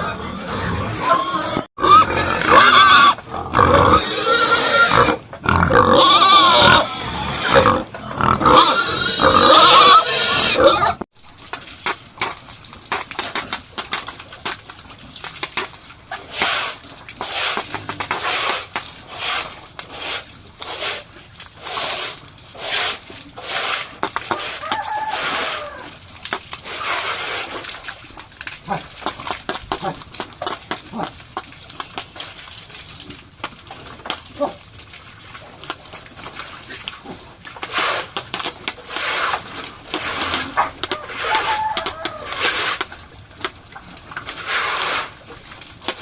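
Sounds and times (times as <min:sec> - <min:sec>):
pigs squealing: 0:00.0 - 0:11.0, 0:21.7 - 0:26.0, 0:40.0 - 0:42.8.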